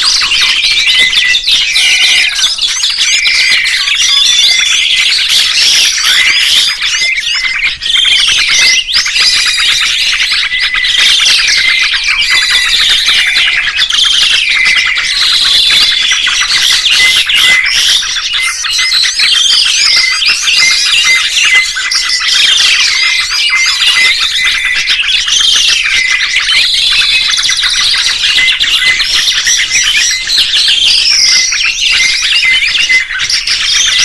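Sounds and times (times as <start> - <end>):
songbirds chirping and twittering: 0.0 - 34.0.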